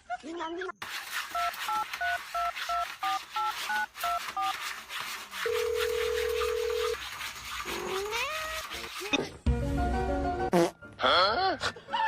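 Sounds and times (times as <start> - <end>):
steady phone tone: 5.5 - 7.0.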